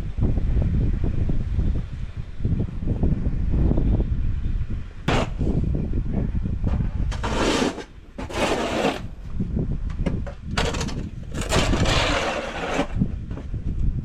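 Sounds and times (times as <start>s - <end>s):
shovel scraping snow: 5.1s - 5.4s, 7.1s - 9.1s, 11.3s - 13.0s.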